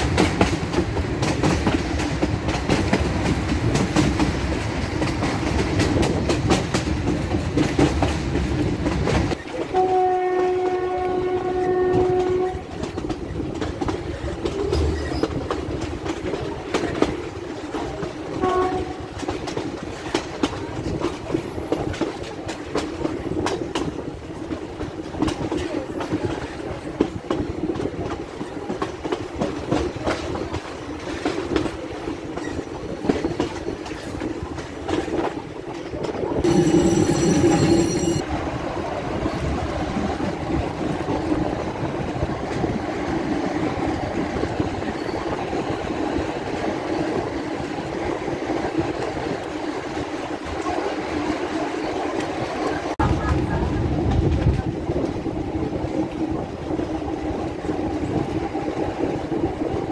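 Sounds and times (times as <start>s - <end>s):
rail joint clickety-clack: 0.0s - 59.9s
train wheels rumbling: 0.0s - 59.9s
train horn blast: 9.6s - 12.9s, 18.4s - 19.1s.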